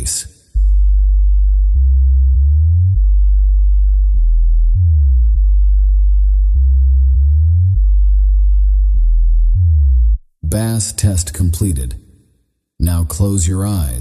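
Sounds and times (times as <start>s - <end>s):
sub-bass sine tones: 0.0s - 10.6s.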